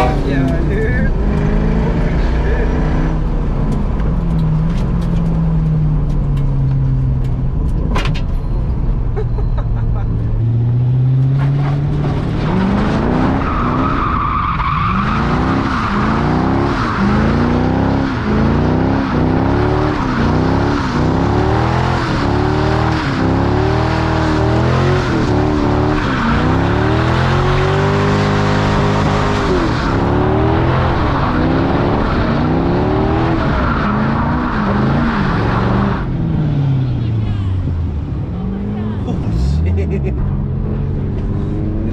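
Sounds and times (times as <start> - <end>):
car engine revving: 0.0 - 7.8, 10.2 - 41.9
tire squeal: 11.3 - 22.3, 24.9 - 36.1.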